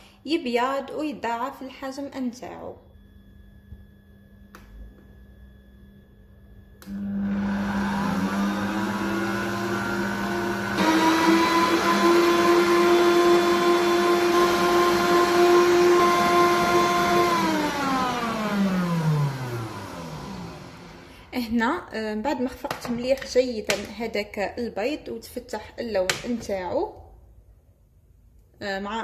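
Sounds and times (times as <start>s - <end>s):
electric stand mixer whisking: 7.0s - 21.1s.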